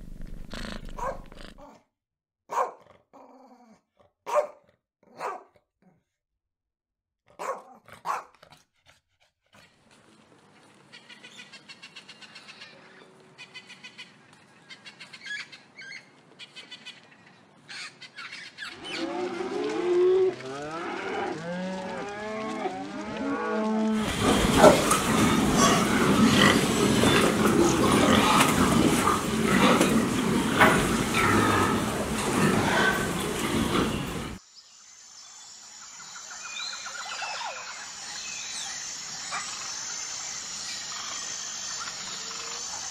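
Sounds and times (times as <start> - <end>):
dog barks: 0.9 - 1.8, 2.5 - 3.0, 4.2 - 5.6, 7.3 - 8.6, 24.2 - 25.1
pigs squealing in a barn: 18.6 - 34.4.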